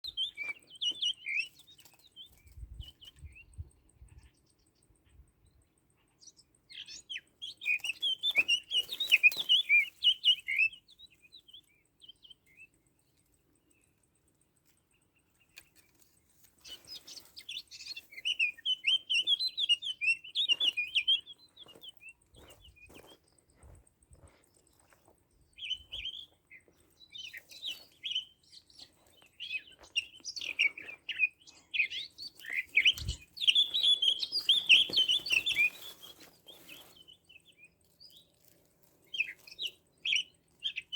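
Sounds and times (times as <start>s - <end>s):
small songbirds twittering: 0.0s - 40.9s.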